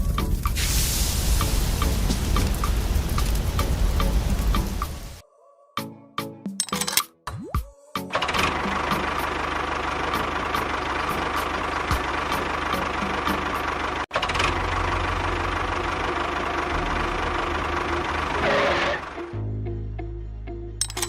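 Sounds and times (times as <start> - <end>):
engine running steadily: 8.2 - 19.4.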